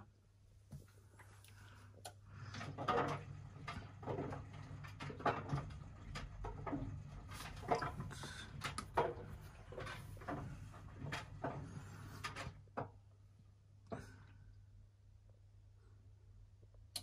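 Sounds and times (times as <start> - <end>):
objects knocking and clicking: 2.5 - 13.0.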